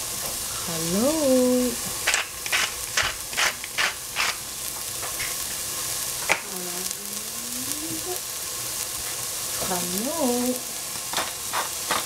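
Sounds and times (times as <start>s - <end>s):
vegetables sizzling in a pot: 0.0s - 12.0s
person's voice: 0.6s - 1.8s, 6.5s - 8.2s, 9.6s - 10.6s.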